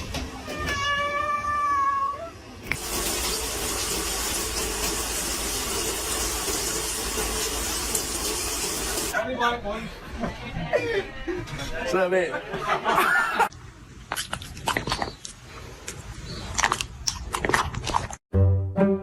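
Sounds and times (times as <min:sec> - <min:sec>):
cat meowing: 0:00.4 - 0:02.4.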